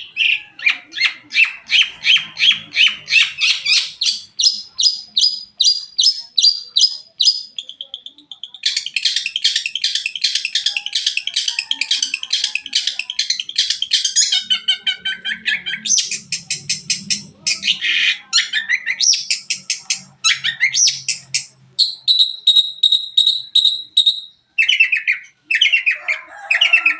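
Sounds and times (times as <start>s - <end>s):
shrike singing fast varied song: 0.0s - 26.0s.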